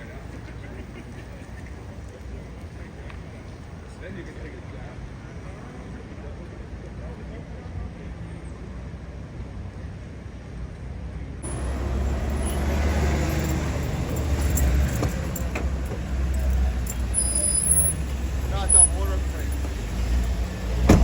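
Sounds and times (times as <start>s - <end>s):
vehicle engines rumbling: 0.0s - 7.7s, 11.4s - 21.0s.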